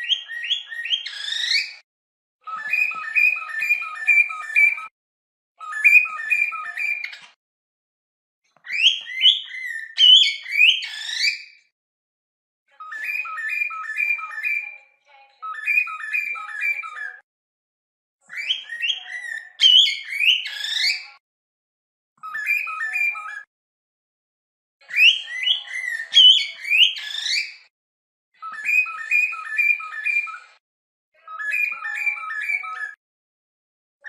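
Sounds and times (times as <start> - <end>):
cockatiel whistling: 0.0 - 1.8, 2.5 - 4.9, 5.6 - 7.3, 8.6 - 11.5, 12.9 - 14.6, 15.4 - 17.2, 18.3 - 21.0, 22.2 - 23.5, 24.9 - 27.6, 28.4 - 30.5.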